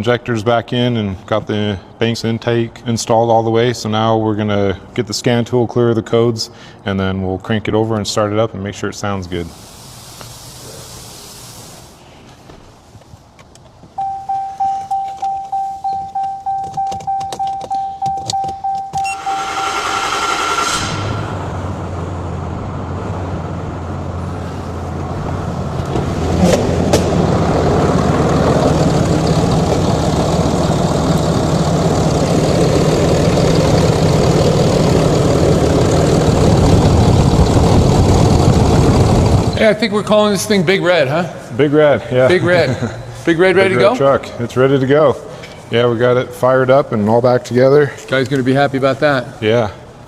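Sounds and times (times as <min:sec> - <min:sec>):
steady tone: 0:14.0 - 0:25.8
truck engine cranking and starting: 0:16.2 - 0:39.6.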